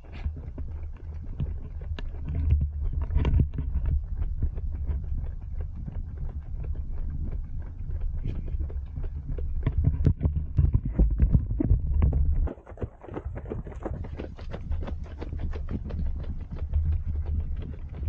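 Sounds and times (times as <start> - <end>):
low steady rumble: 0.0 - 18.0
running footsteps on a path: 11.0 - 18.0.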